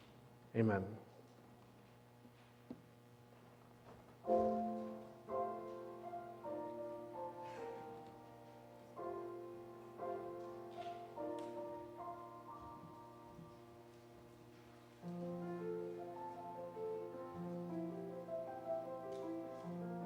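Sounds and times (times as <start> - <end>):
piano playing slow chords: 4.2 - 20.0.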